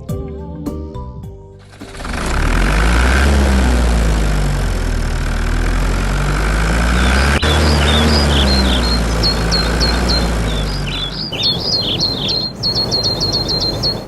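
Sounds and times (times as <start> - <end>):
heavy vehicle engine idling: 1.6 - 14.0
birds chirping: 6.0 - 14.0.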